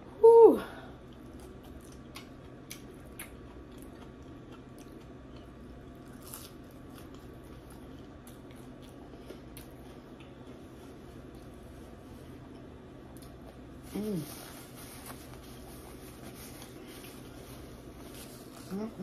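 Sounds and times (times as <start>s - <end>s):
person chewing food: 1.0s - 13.8s.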